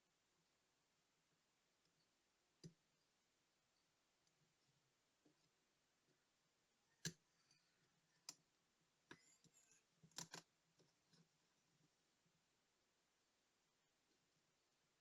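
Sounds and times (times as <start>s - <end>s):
small tools clicking and tapping: 10.1s - 10.5s.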